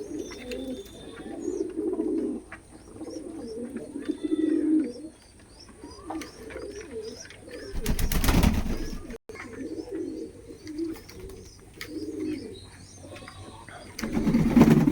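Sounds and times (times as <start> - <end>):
pigeons cooing: 0.0 - 14.9
small birds chirping: 0.0 - 14.9.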